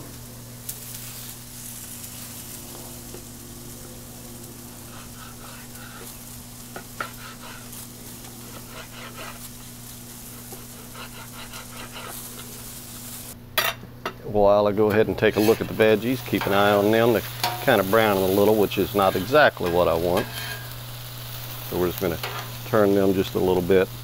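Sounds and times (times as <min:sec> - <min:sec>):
vegetables sizzling on a griddle: 0:00.0 - 0:13.4, 0:15.2 - 0:24.0
low steady hum: 0:00.0 - 0:24.0.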